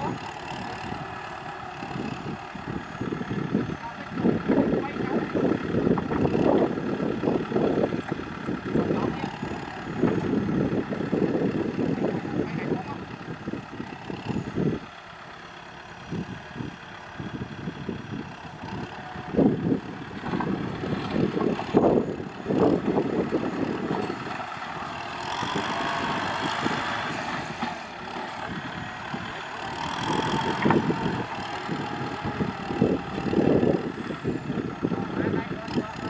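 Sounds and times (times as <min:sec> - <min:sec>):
tractor diesel engine working: 0:00.0 - 0:36.0.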